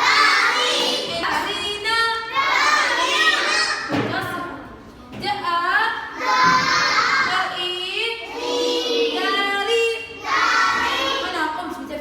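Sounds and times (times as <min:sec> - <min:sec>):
children singing together: 0:02.3 - 0:03.9, 0:06.1 - 0:07.6, 0:08.2 - 0:11.4.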